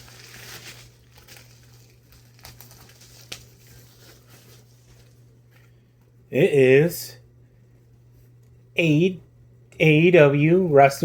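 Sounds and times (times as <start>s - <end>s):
packaging crinkling and rustling: 0.0s - 5.7s
low steady hum: 0.0s - 11.0s.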